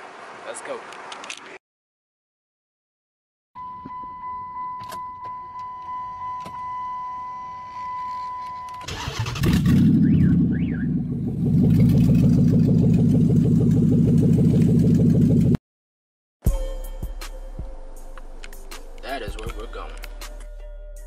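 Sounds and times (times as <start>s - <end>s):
car warning chime: 3.6s - 8.9s
car engine starting and running: 8.8s - 15.6s.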